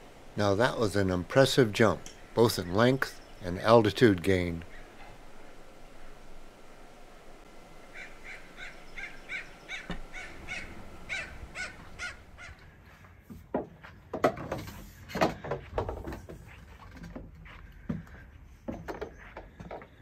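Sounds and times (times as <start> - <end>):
crow cawing harshly: 7.9 - 12.8
footsteps on wooden deck: 9.7 - 10.7, 11.6 - 20.0.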